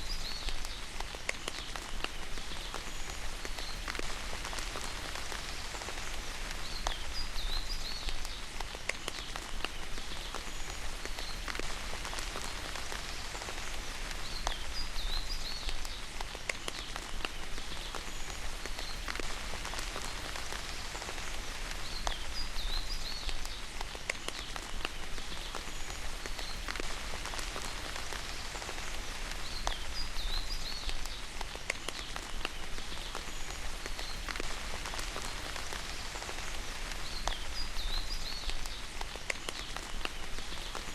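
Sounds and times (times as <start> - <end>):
rain drops ticking on surface: 0.0 - 40.9.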